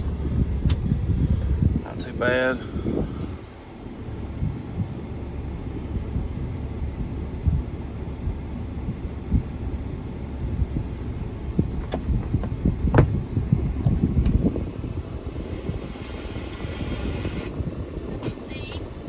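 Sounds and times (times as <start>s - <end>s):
diesel engine rumbling: 0.0s - 19.0s
sharp clicks and knocks: 11.6s - 13.2s.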